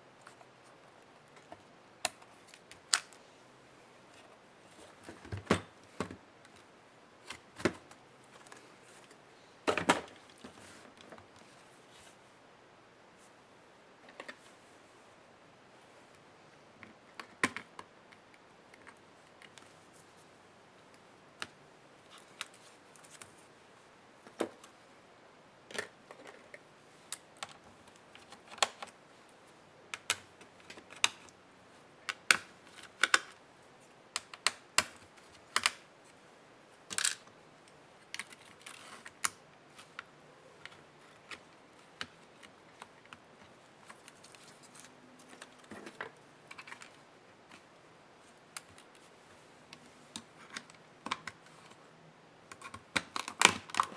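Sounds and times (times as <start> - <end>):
clicks of plastic laptop parts: 27.2 - 29.0, 29.9 - 31.4, 32.1 - 33.4, 34.2 - 35.9, 49.8 - 51.8, 52.5 - 53.9.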